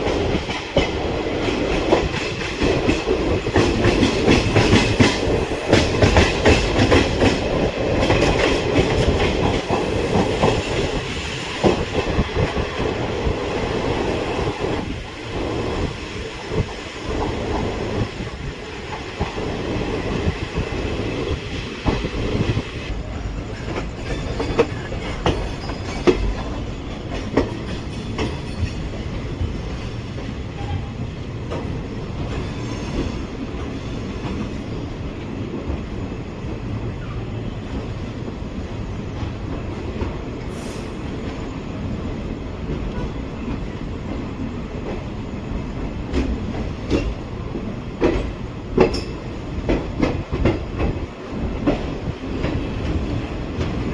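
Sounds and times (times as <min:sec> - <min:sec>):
train coaches rumbling: 0:00.0 - 0:53.9.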